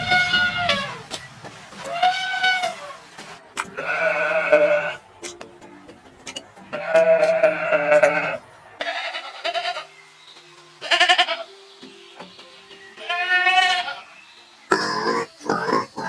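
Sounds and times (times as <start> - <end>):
animal bleating: 0.0 - 1.1, 1.9 - 3.0, 3.7 - 5.0, 6.7 - 9.9, 10.8 - 11.5, 13.0 - 15.9.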